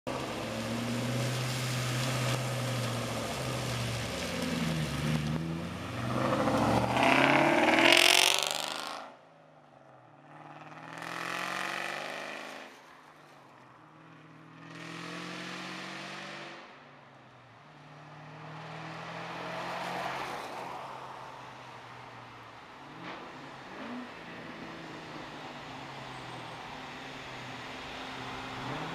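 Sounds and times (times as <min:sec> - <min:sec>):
car engine revving: 0:00.2 - 0:09.1, 0:10.3 - 0:12.7.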